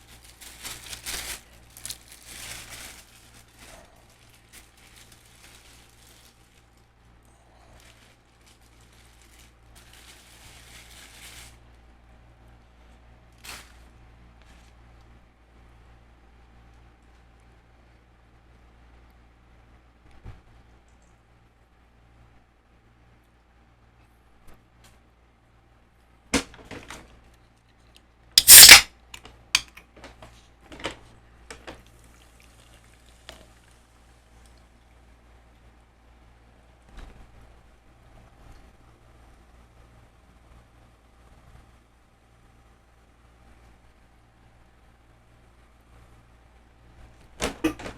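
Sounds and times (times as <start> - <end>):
hands rustling food packaging: 0.0 - 11.7
faint steady hum: 0.0 - 47.9
small clicks and smacks: 20.8 - 21.2
loud wet burst: 28.4 - 28.8
sharp crackle: 28.4 - 28.9.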